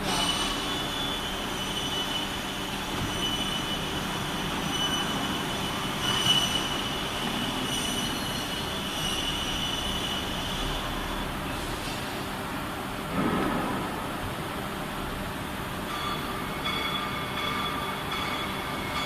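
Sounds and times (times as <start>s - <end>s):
bending machine whine: 0.0s - 11.7s.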